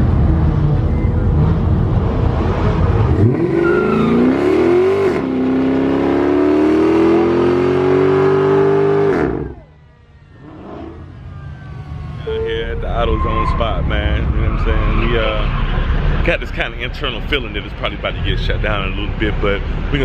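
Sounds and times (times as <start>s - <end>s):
car engine revving hard: 0.0s - 9.6s.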